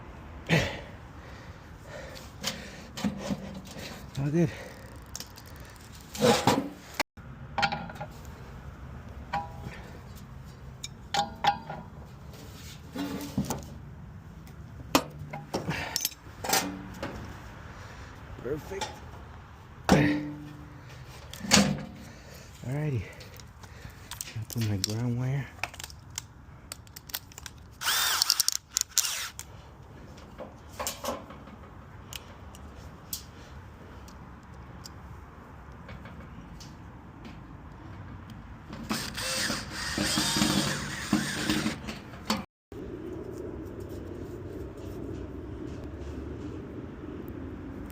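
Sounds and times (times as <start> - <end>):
clicks and knocks of metal parts: 2.4 - 6.6, 9.3 - 12.2, 14.4 - 17.2, 23.0 - 29.5
metal scrape: 5.8 - 7.0, 12.1 - 13.7
metal tools clicking and knocking: 15.0 - 16.7.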